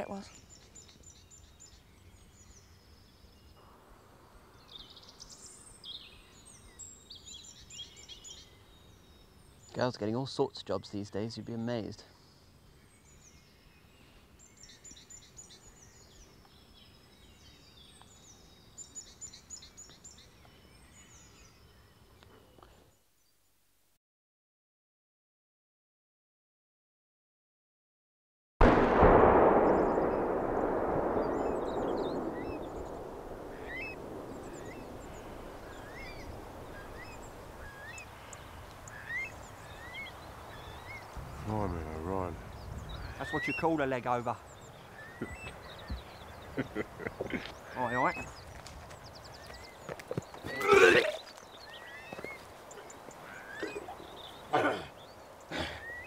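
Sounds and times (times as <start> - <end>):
faint songbird chirps: 0.0 - 23.7, 28.7 - 56.0
low outdoor background noise: 0.0 - 24.0, 28.6 - 56.0
low rumble: 28.6 - 37.9.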